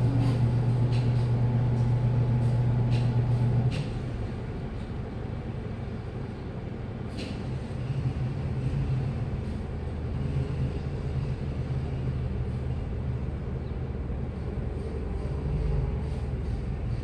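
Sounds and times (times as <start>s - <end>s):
washing machine humming: 0.0s - 7.1s.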